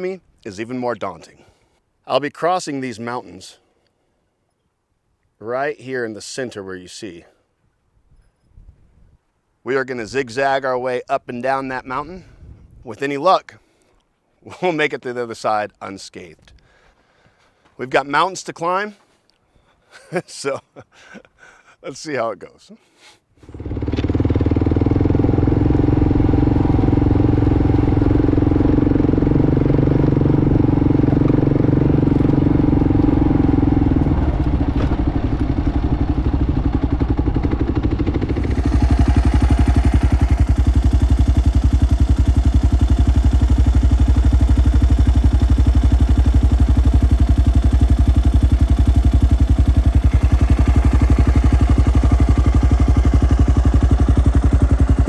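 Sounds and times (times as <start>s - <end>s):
motorcycle engine running: 23.5s - 55.0s.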